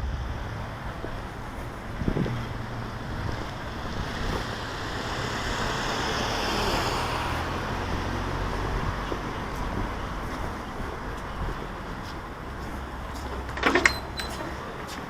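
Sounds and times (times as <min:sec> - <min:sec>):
car driving past: 0:00.0 - 0:10.3
low traffic hum: 0:00.0 - 0:15.0.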